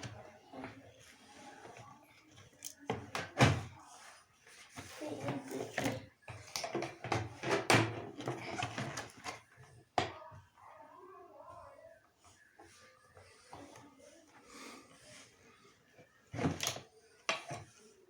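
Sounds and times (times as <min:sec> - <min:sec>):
objects knocking and clattering: 0:04.8 - 0:10.2.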